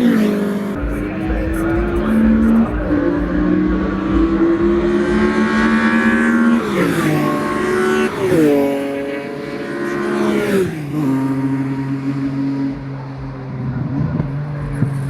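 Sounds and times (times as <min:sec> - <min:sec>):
car engine revving under load: 0:00.0 - 0:15.0.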